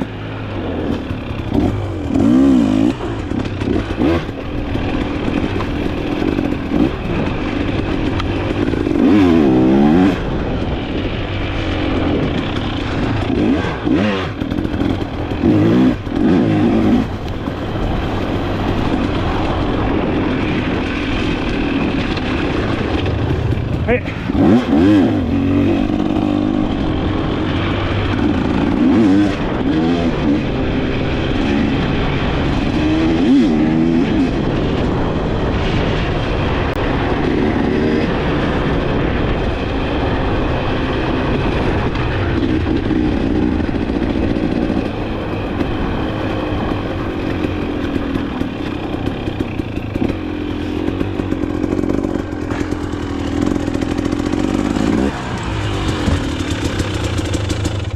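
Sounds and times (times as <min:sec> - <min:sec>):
dirt bike engine revving: 0:00.0 - 0:57.9.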